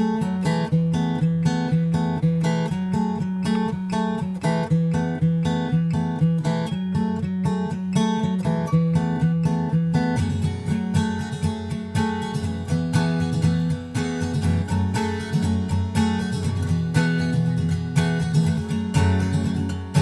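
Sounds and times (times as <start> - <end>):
acoustic guitar music: 0.0 - 20.0.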